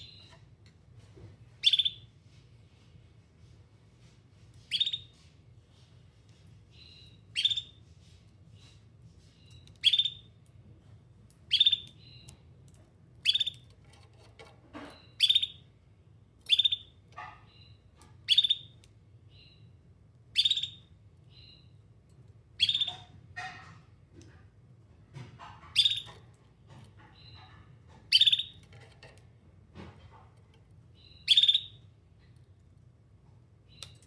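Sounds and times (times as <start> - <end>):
canary chirping calls: 1.6 - 2.1, 4.6 - 5.2, 6.7 - 7.9, 9.4 - 10.4, 11.4 - 12.4, 13.2 - 15.7, 16.4 - 21.8, 22.6 - 23.8, 25.4 - 29.2, 30.9 - 31.9.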